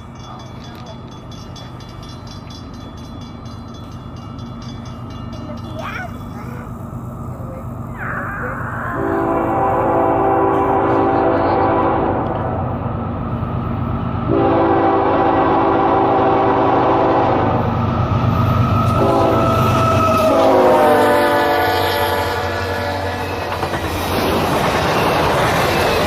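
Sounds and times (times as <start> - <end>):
train rushing and clattering by: 0.0 - 26.0
train horn blasts: 8.9 - 12.7, 14.3 - 17.6, 18.8 - 23.6.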